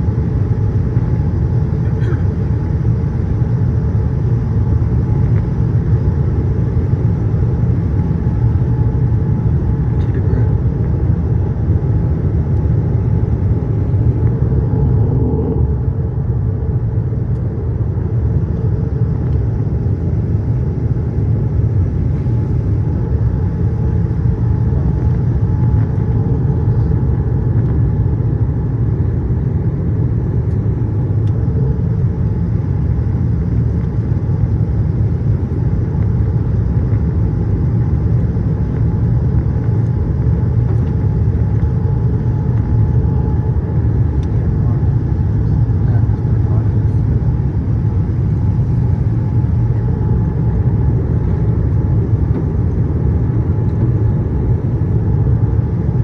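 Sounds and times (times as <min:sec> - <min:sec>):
airliner cabin engine rumble: 0:00.0 - 0:56.0
faint steady hum: 0:00.0 - 0:56.0.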